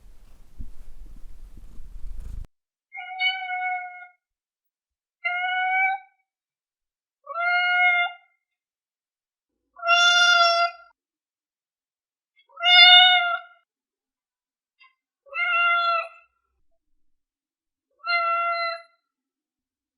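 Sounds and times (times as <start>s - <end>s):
cat meowing: 3.0s - 4.2s, 7.2s - 8.3s, 12.5s - 13.6s, 15.3s - 16.2s, 18.0s - 18.9s.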